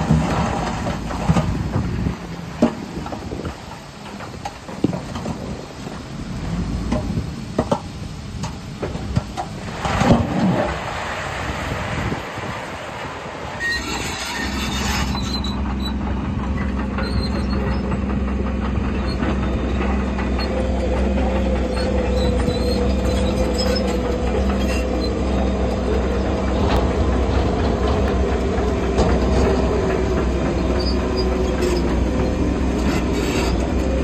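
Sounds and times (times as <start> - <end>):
diesel engine under load: 0.0 - 34.0
steel tracks clanking and squealing: 13.5 - 34.0.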